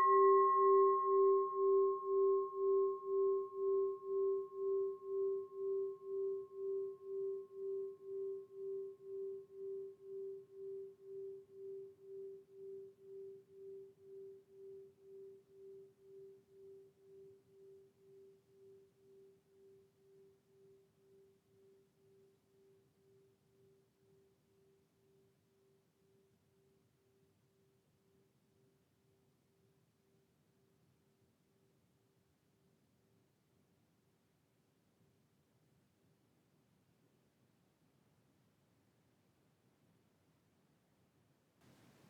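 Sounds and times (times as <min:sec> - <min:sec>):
singing bowl ringing: 0:00.0 - 0:22.3.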